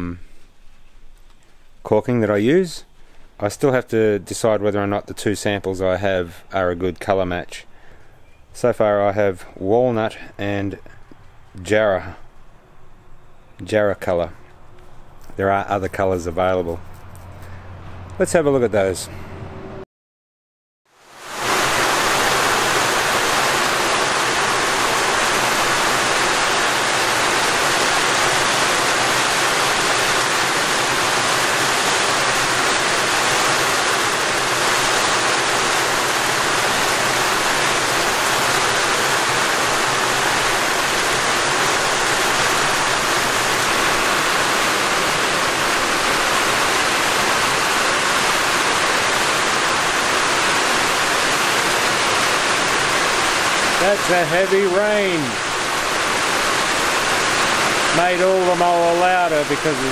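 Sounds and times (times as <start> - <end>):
heavy rain on a metal roof: 20.9 - 59.9.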